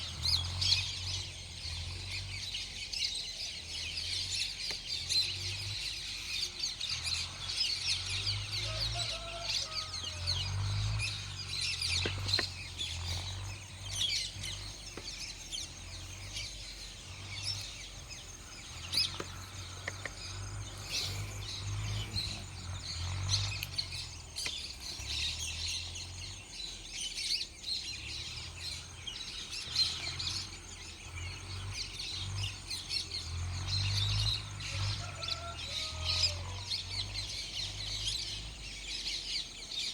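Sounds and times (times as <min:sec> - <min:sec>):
small birds chirping: 0:00.0 - 0:39.9
low uneven rumble: 0:07.1 - 0:26.7.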